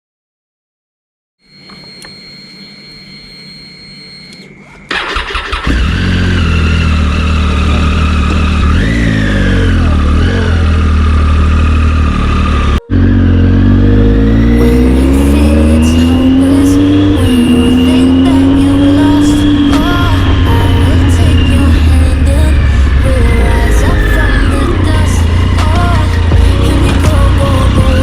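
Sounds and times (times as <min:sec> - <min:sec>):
faint steady whine: 0:01.4 - 0:05.0
motorcycle starter cranking: 0:04.9 - 0:09.8
motorcycle engine idling and revving: 0:04.9 - 0:28.0.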